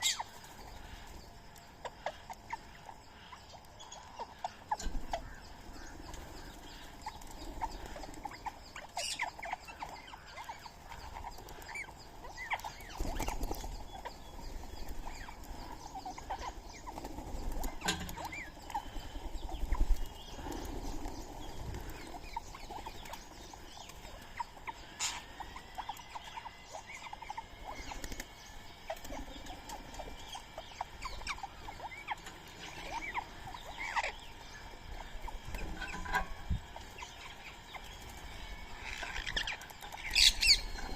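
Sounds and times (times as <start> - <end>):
birds chirping: 0.0 - 40.9
drawn-out bird call: 0.0 - 40.9
pecking and scrabbling clicks: 6.0 - 26.4, 35.0 - 40.9.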